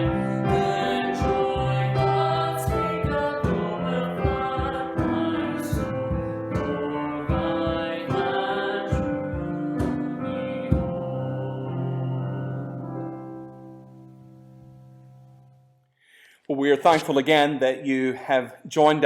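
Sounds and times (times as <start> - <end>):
person singing: 0.0 - 12.7
piano: 0.0 - 15.9.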